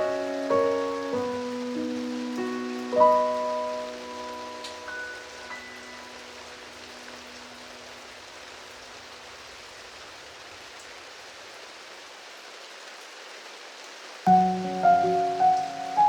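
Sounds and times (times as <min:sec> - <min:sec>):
rain falling steadily: 0:00.0 - 0:16.0.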